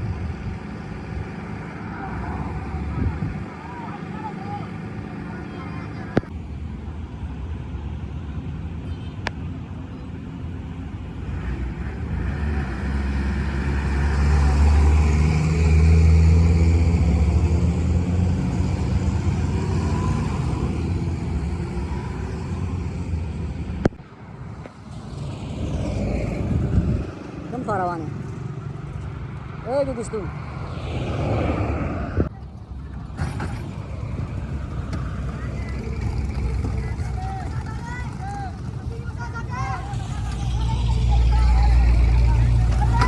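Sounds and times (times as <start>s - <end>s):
heavy vehicle engine running: 32.2s - 43.0s.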